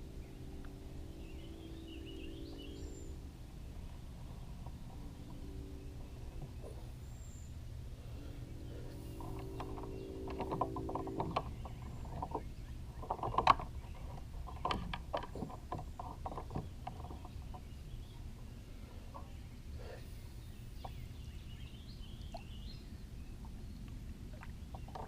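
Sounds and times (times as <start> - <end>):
reel clicks and knocks: 9.0 - 17.7, 24.7 - 25.0.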